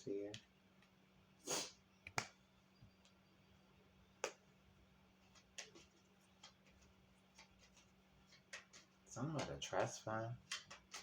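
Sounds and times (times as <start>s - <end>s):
cards clicking and tapping on table: 4.2s - 4.4s, 5.3s - 11.0s.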